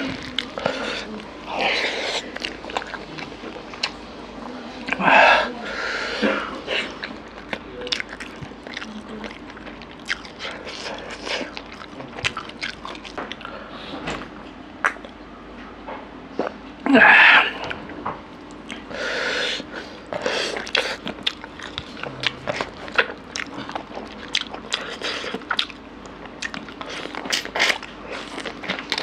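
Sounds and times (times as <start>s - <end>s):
man chewing wetly: 0.0s - 4.0s, 6.2s - 13.7s, 17.5s - 29.0s.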